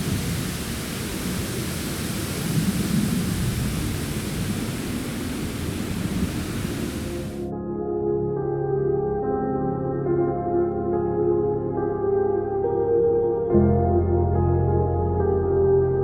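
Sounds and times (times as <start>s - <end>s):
foliage rustling in wind: 0.0s - 7.5s
wind buffeting microphone: 0.0s - 7.5s.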